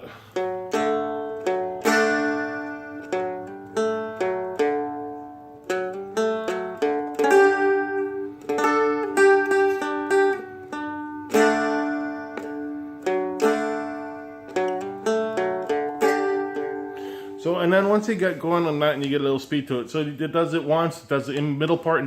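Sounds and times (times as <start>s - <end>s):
strummed dulcimer chords: 0.0s - 22.0s.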